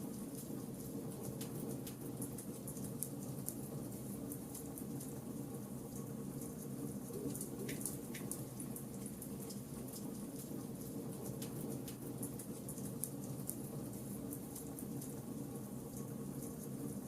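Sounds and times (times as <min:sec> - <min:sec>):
charcoal fire crackling and popping: 0:07.3 - 0:15.2.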